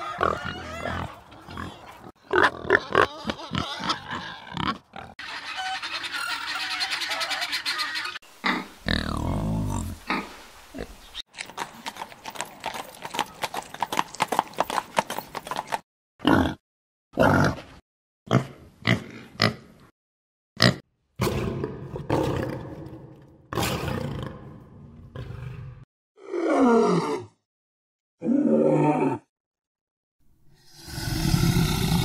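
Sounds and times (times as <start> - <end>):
coarse animal calls: 0.0 - 9.2
animal grunts: 30.7 - 32.0.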